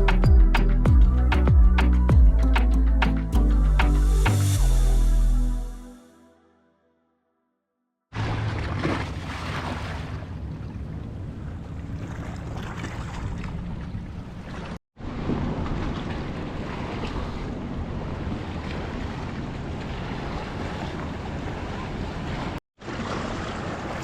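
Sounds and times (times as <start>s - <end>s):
water sloshing and lapping: 8.1s - 24.0s.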